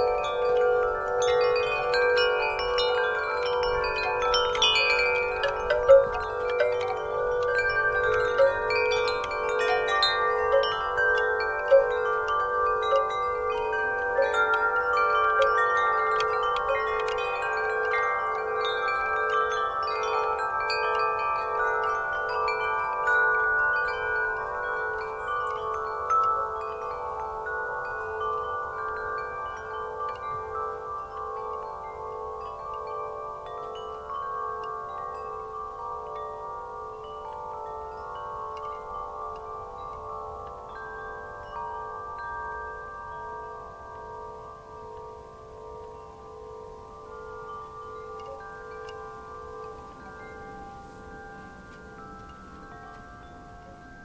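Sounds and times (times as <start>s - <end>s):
wind chimes ringing: 0.0s - 54.0s.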